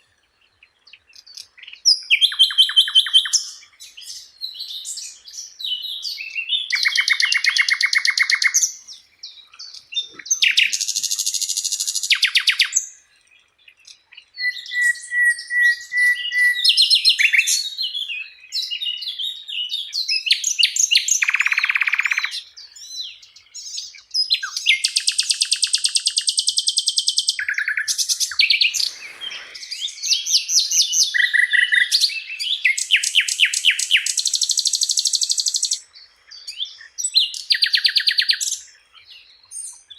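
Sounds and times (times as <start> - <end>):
flycatcher singing rattling trills: 23.6 - 38.8.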